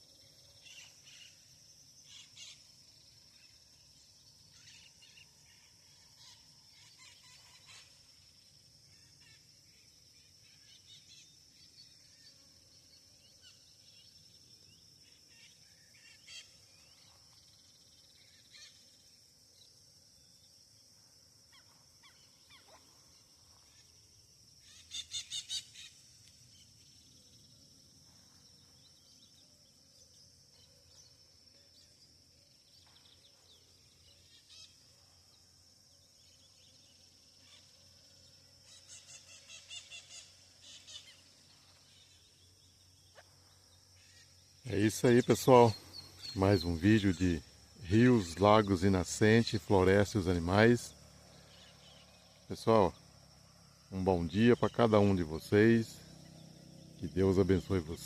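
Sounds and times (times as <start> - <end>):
faint bird chirps: 0.0 - 53.1
high-pitched insect drone: 0.0 - 58.0
bird harsh call: 24.6 - 26.0, 38.6 - 41.6.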